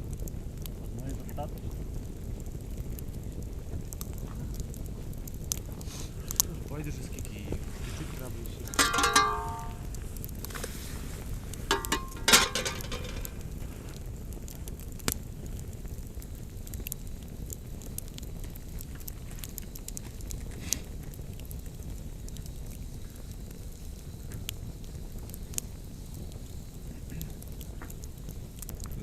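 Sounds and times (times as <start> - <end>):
campfire crackling: 0.0 - 29.0.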